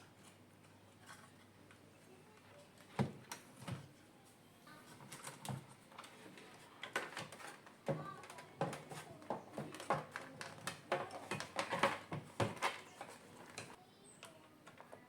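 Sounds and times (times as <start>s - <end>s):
plastic and metal parts clicking: 5.1s - 15.0s.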